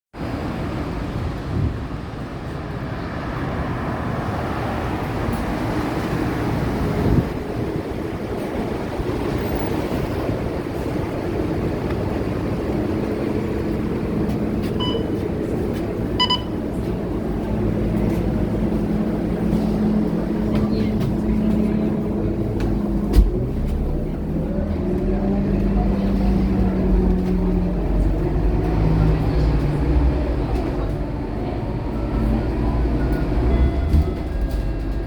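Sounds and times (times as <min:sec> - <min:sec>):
road noise: 0:00.1 - 0:35.0
bus diesel engine droning: 0:00.2 - 0:35.0
short electronic beeps: 0:14.8 - 0:15.2, 0:16.2 - 0:16.6.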